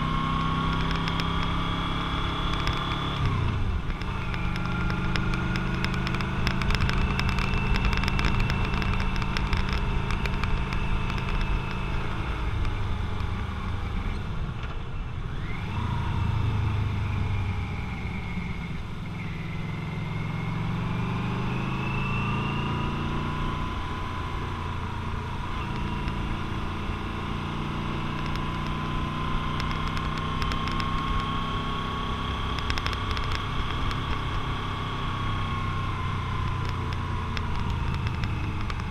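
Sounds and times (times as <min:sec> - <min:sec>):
motorcycle engine running: 0:00.0 - 0:14.5, 0:22.4 - 0:38.9.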